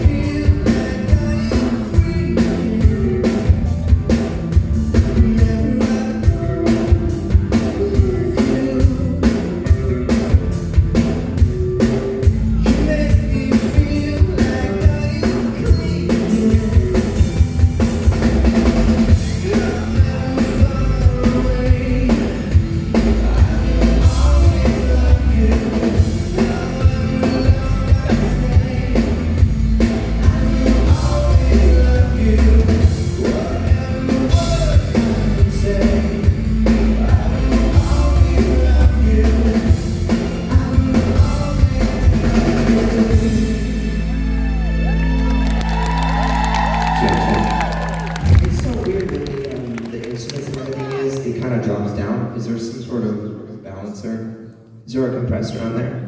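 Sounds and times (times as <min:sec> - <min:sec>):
lead vocal singing: 0:00.0 - 0:03.8, 0:04.8 - 0:10.2, 0:12.3 - 0:17.4, 0:18.1 - 0:44.6, 0:45.8 - 0:49.4
drum kit steady beat: 0:00.0 - 0:44.0, 0:45.4 - 0:49.7
live rock band playing: 0:00.0 - 0:51.0.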